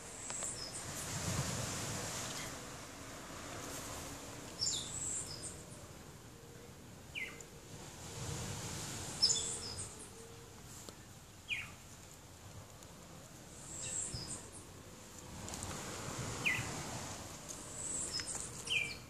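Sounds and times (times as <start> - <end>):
high falling bird chirps: 9.2 - 10.1, 17.7 - 19.0.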